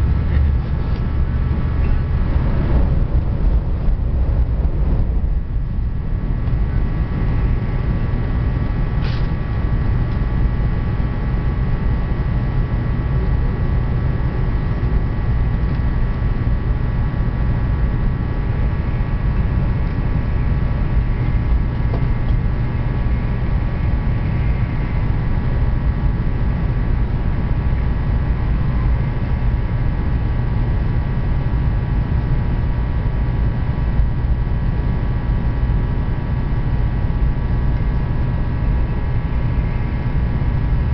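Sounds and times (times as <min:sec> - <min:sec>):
faint high whine: 0:00.0 - 0:40.9
train rumbling: 0:00.0 - 0:40.9.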